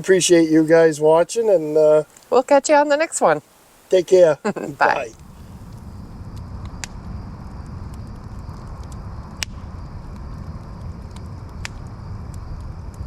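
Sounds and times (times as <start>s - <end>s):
low rumbling noise: 4.6s - 13.0s.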